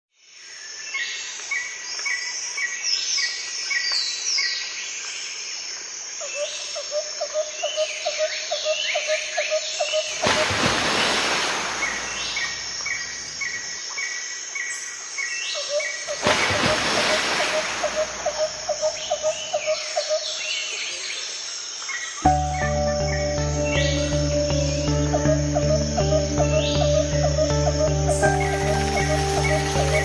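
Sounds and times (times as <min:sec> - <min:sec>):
birds chirping and whistling: 0:22.3 - 0:30.0.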